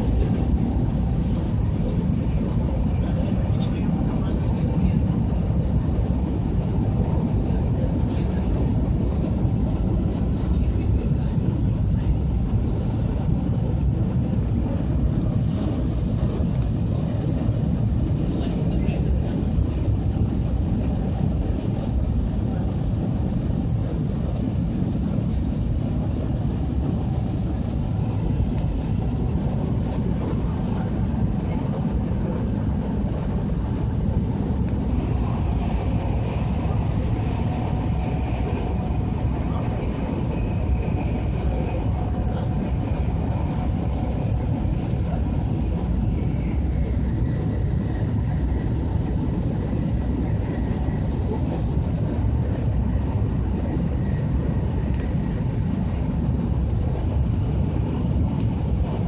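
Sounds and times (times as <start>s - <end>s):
air rushing past train: 0.0s - 59.0s
wheels rumbling on rail: 0.0s - 59.0s.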